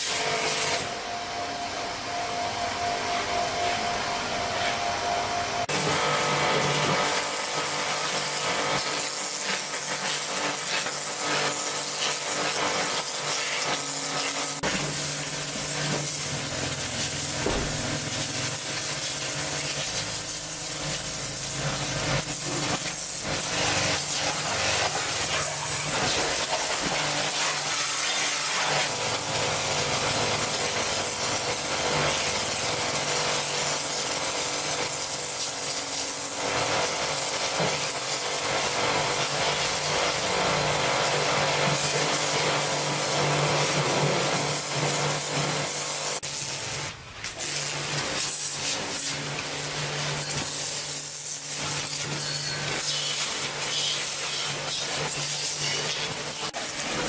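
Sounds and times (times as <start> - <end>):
steady hum: 0.8 - 5.7.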